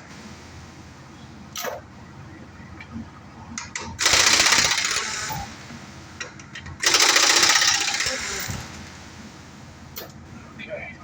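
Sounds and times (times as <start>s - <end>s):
power tool rattling: 4.0s - 5.6s, 6.8s - 9.1s.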